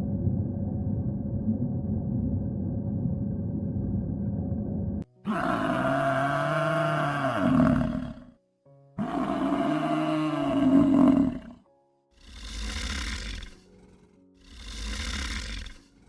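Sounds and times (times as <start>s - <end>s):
large animal deep call: 5.2s - 8.4s, 9.0s - 16.0s.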